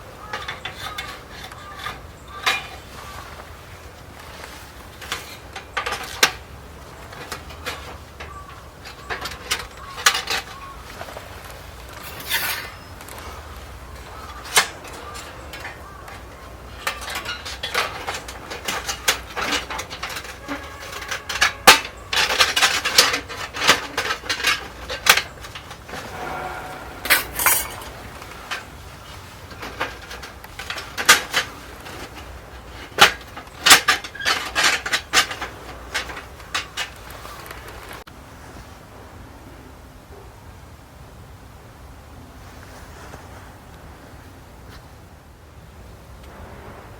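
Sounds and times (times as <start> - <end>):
metal cookware clinking: 26.0 - 28.6.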